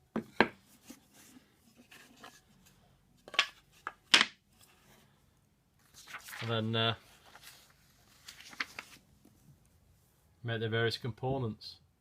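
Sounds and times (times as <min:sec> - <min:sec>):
wooden pieces knocking on workbench: 0:00.1 - 0:00.6, 0:03.3 - 0:04.4.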